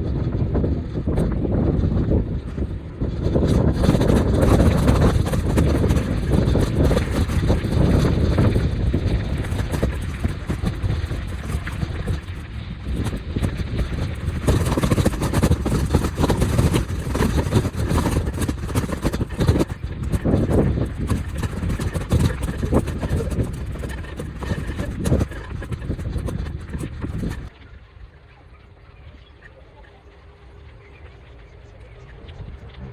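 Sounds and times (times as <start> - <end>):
wind buffeting microphone: 0.0 - 28.2, 28.9 - 32.9
small rattles: 2.4 - 27.5
road noise: 30.1 - 32.9.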